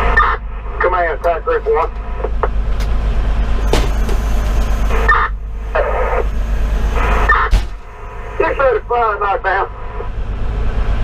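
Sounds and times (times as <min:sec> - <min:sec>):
garbled radio transmission: 0:00.0 - 0:02.4, 0:04.0 - 0:10.1
diesel engine rumble: 0:00.0 - 0:11.0.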